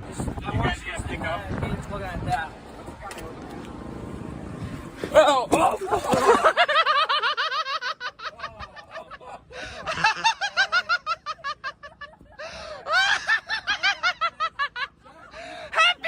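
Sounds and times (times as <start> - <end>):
people laughing hard: 5.6 - 16.0.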